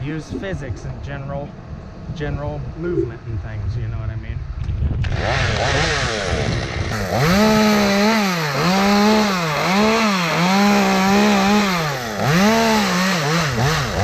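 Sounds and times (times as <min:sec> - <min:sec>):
chainsaw engine at high revs: 0:05.0 - 0:14.0.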